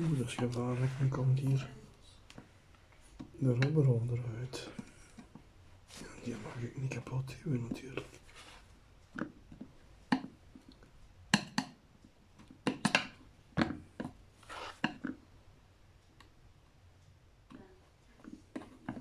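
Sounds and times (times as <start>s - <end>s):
short scraping rub: 14.4s - 14.8s.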